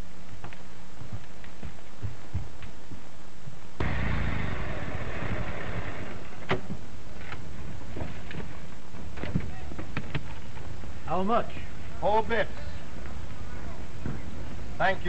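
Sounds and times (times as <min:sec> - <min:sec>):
faint footsteps: 0:00.0 - 0:04.2, 0:05.2 - 0:15.0
soundtrack hiss and hum: 0:00.0 - 0:15.0
old car engine running: 0:03.8 - 0:06.5.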